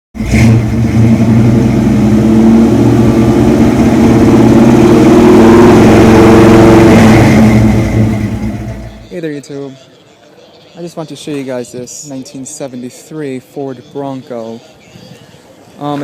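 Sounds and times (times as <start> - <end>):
loud engine exhaust: 0.2 - 9.1.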